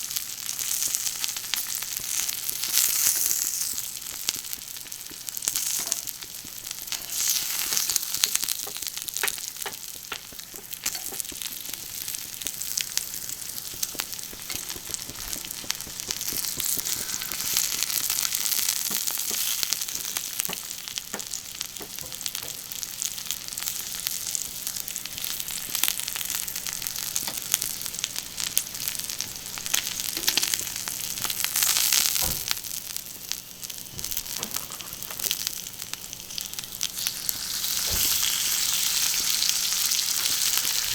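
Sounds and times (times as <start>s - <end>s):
food sizzling on a griddle: 0.0s - 40.9s.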